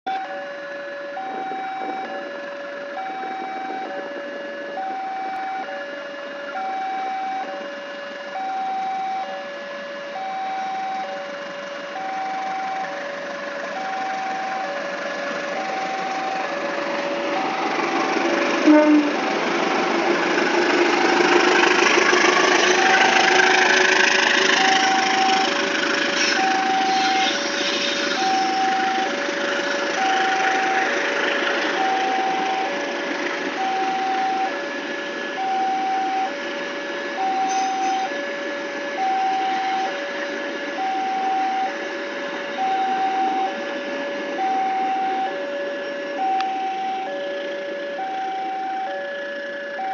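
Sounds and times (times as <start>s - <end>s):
two-tone warning alarm beeping: 0.1s - 13.1s, 13.7s - 14.9s, 15.5s - 16.5s, 18.6s - 19.2s, 24.1s - 25.6s, 26.2s - 30.9s, 31.7s - 32.8s, 33.5s - 38.3s, 38.9s - 49.9s
locomotive engine: 0.1s - 49.9s.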